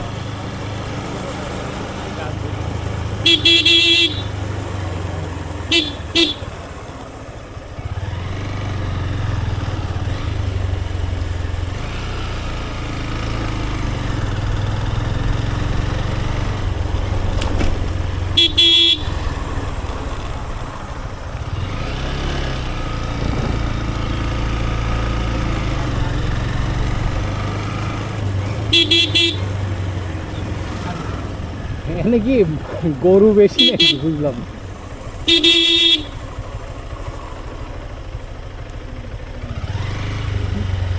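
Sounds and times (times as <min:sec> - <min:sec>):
motorcycle engine running: 0:00.0 - 0:40.9
motorcycle horn beeps: 0:03.1 - 0:06.8, 0:18.3 - 0:19.7, 0:27.9 - 0:31.8, 0:33.5 - 0:34.5, 0:35.2 - 0:36.5.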